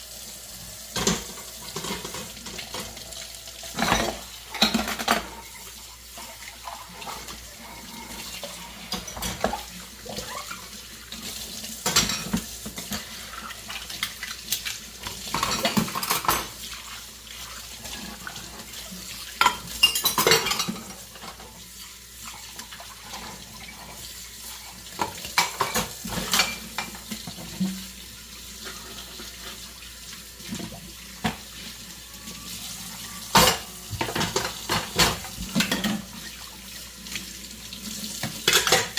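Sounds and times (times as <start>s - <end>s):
running tap: 0.0s - 38.9s
dishes clinking and knocking: 1.0s - 3.0s, 3.7s - 5.6s, 7.0s - 10.6s, 11.8s - 13.1s, 15.1s - 16.6s, 19.4s - 21.4s, 25.0s - 27.8s, 33.1s - 36.1s, 38.2s - 38.9s.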